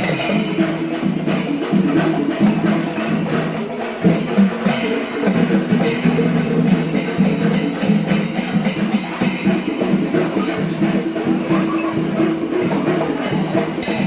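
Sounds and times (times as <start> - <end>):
drums played fast: 0.0 - 14.0
hand cymbals clashing: 0.0 - 14.0.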